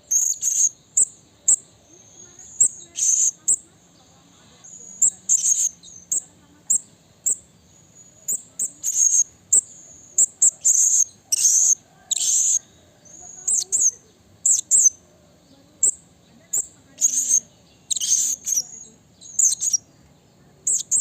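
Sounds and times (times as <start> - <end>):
parrot calling: 8.3 - 15.0, 15.8 - 19.8.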